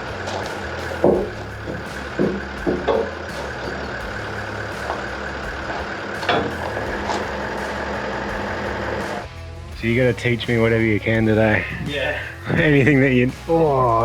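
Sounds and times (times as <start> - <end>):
short knocks: 0.0 - 4.0
vehicle engine idling: 0.0 - 14.0.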